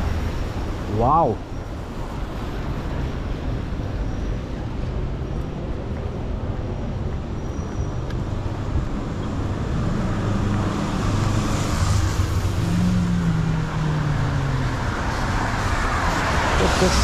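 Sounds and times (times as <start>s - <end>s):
vehicle engines running: 5.4s - 17.0s.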